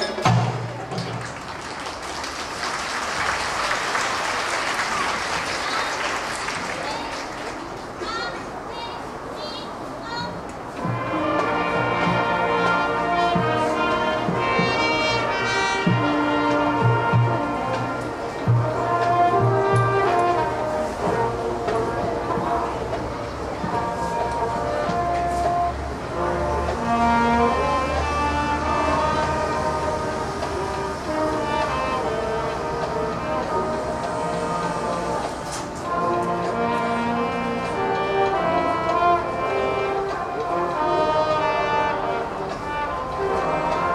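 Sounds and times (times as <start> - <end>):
marching band brass playing: 10.0 - 43.9.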